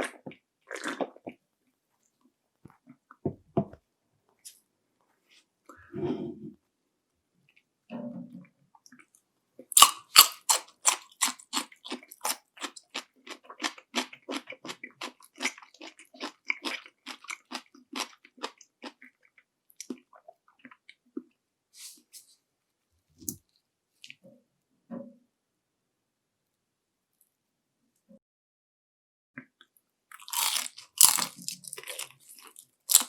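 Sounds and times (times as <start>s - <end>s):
crunchy chewing: 9.7s - 20.8s, 30.1s - 33.0s
crisp crunching bites: 9.8s - 12.8s, 30.1s - 33.0s.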